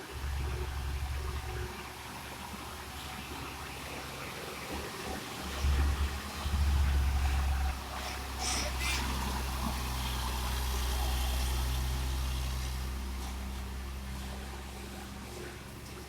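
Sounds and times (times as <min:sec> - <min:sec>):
truck diesel engine droning: 0:00.0 - 0:16.0.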